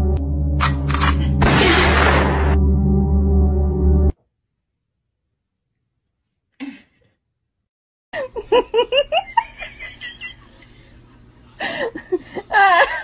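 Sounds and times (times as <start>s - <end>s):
person laughing: 8.2s - 11.0s, 11.6s - 13.0s.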